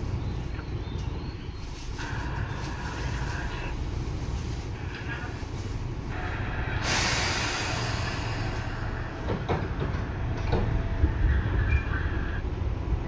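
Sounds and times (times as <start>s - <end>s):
train wheels rumbling on rail: 0.0s - 13.0s
rail-joint clicks: 6.9s - 12.1s.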